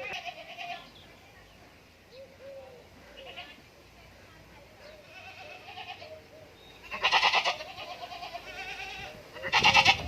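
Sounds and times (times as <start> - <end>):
goat bleating: 0.0 - 0.9, 3.2 - 3.6, 5.0 - 6.2, 6.8 - 10.0.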